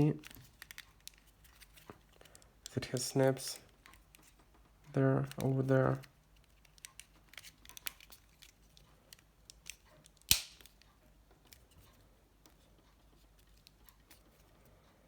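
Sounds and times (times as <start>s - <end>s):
plastic phone parts clicking: 0.2s - 2.8s, 3.7s - 4.5s, 5.2s - 12.6s.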